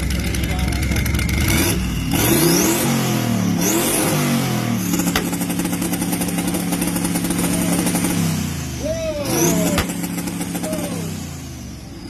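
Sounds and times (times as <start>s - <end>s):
engine crackling on limiter: 0.0s - 11.7s
car engine revving: 0.0s - 12.0s
sharp exhaust pop: 4.8s - 8.2s, 9.4s - 10.9s.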